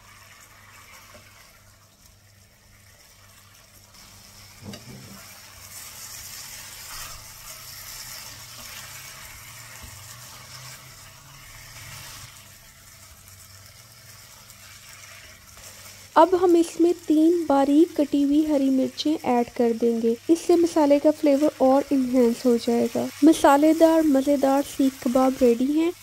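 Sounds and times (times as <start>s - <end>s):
food sizzling in a pan: 0.0s - 26.0s
spatula stirring: 4.0s - 16.7s.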